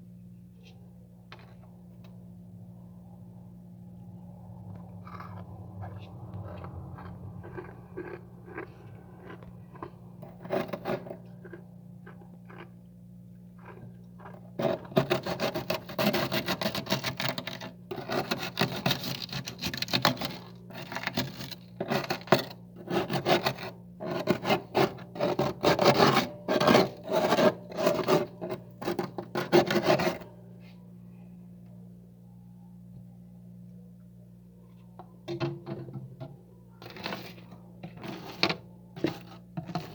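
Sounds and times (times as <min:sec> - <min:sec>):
steady low hum: 0:00.0 - 0:39.9
frost being scraped: 0:07.6 - 0:11.6, 0:14.6 - 0:30.3, 0:36.8 - 0:39.9.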